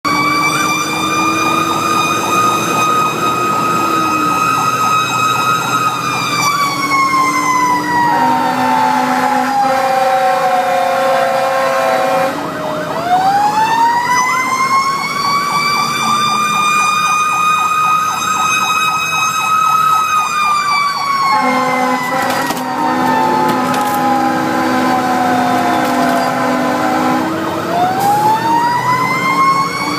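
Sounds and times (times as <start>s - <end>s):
fire engine siren wailing: 0.0s - 29.9s
low steady horn tone: 8.0s - 12.5s, 21.3s - 25.4s, 26.0s - 27.4s.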